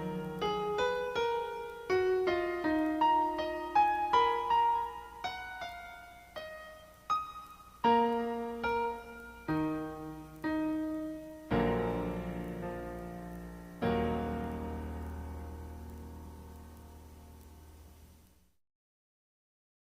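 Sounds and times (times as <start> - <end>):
solo piano melody: 0.0 - 18.1.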